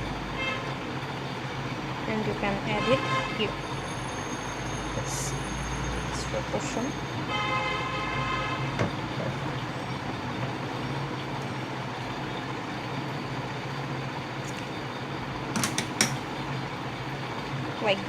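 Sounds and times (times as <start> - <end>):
background hum and hiss: 0.0 - 18.0
car horn: 0.4 - 0.7, 2.7 - 3.6, 7.2 - 8.8.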